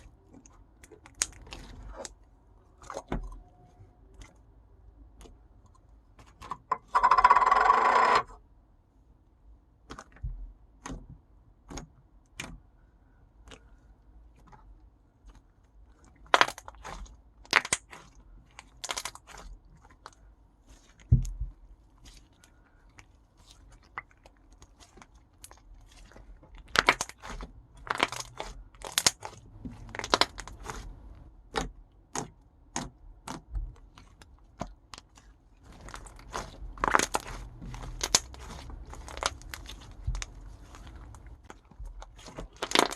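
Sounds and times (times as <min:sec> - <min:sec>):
slime crackling pops and clicks: 0:36.3 - 0:40.2.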